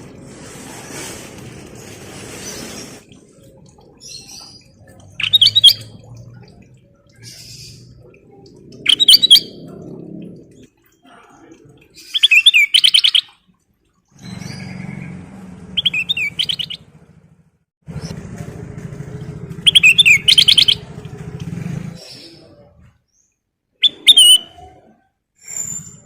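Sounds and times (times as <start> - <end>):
bulbul warbling song: 3.1 - 11.0, 11.9 - 13.5, 15.8 - 16.9, 19.1 - 21.2, 22.0 - 24.9.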